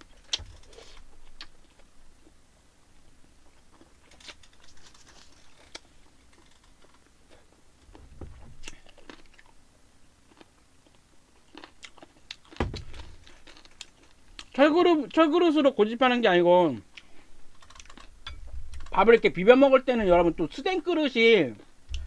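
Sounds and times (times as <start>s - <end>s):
person chewing food: 3.3s - 14.6s, 16.9s - 18.9s
dull thump: 8.0s - 8.6s, 12.6s - 13.2s.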